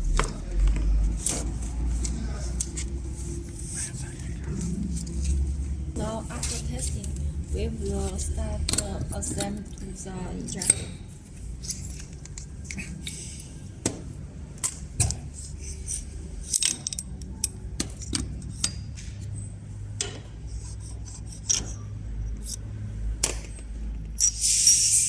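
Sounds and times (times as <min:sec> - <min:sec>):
small metal parts clinking: 0:10.5 - 0:13.6, 0:15.4 - 0:18.8, 0:24.2 - 0:25.0
hiss: 0:24.2 - 0:25.0.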